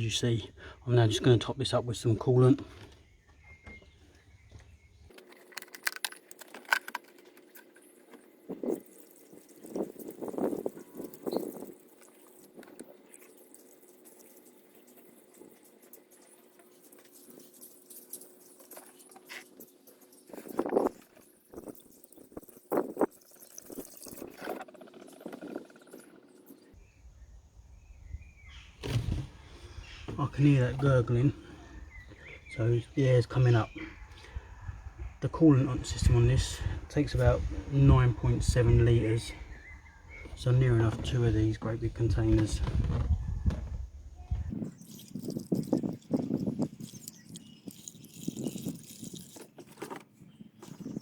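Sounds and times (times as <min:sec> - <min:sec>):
objects clicking and clinking: 0:05.1 - 0:26.6
coolant glugging from container: 0:05.1 - 0:26.7, 0:44.4 - 0:51.0.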